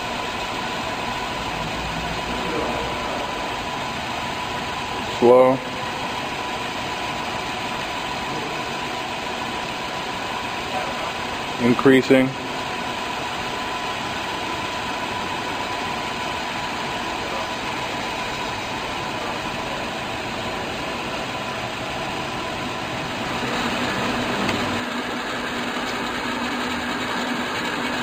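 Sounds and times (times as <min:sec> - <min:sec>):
lathe whirring with hiss: 0:00.0 - 0:28.0.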